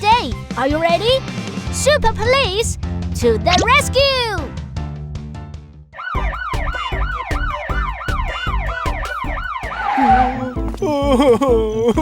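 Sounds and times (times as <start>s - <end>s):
cartoon police siren yelp: 6.0s - 10.5s
music beat: 6.1s - 12.0s.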